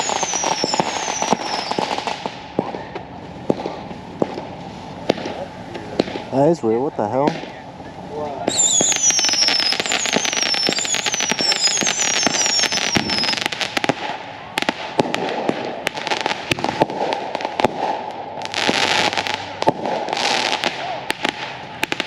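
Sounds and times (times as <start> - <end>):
falling whistles: 0.0 - 1.9, 8.5 - 13.5
fireworks crackle: 0.0 - 22.0.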